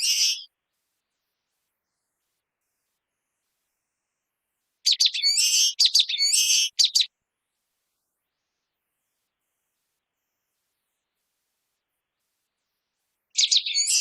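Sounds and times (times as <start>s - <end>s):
bird song with buzzy notes: 0.0s - 0.5s, 4.9s - 7.1s, 13.4s - 14.0s.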